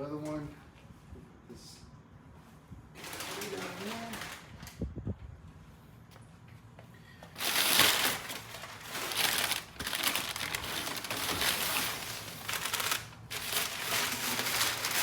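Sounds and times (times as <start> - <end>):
packaging wrap crinkling: 3.0 - 4.7, 7.4 - 15.0.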